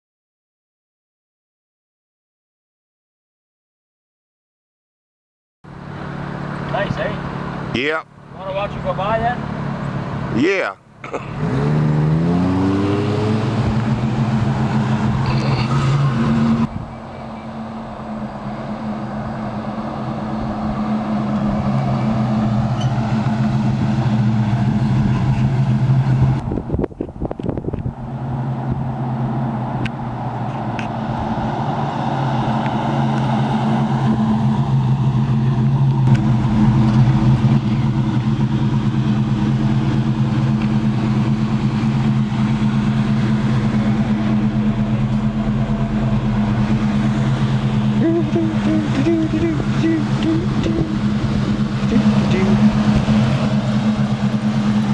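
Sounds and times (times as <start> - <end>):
pickup truck engine running: 13.4 - 54.9.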